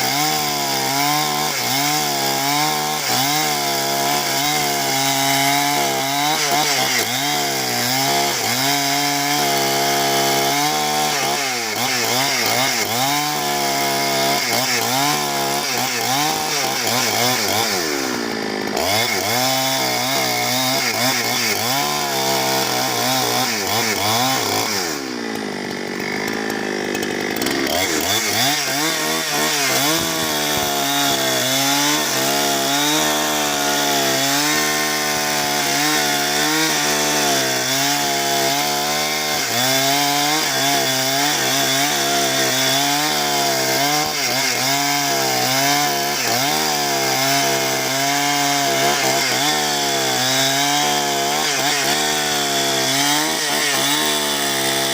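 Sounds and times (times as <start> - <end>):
chainsaw cutting through wood: 0.0 - 54.9.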